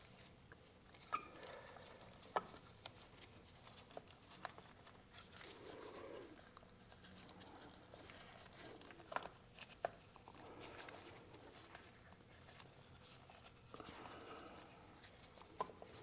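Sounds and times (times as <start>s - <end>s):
soft rustle: 0.0s - 16.0s.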